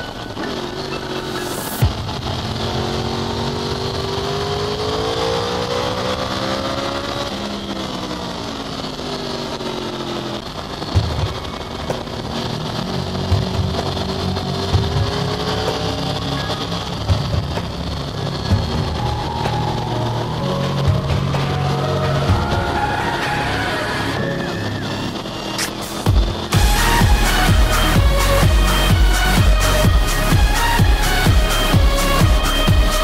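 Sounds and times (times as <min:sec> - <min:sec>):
motorcycle engine accelerating: 0:00.0 - 0:33.0
engine knocks: 0:07.6 - 0:23.6, 0:25.0 - 0:33.0.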